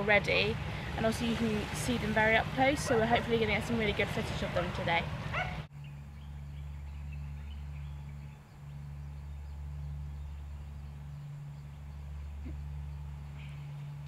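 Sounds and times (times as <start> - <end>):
steady low hum: 0.0 - 14.0
faint bird chirps: 5.8 - 14.0.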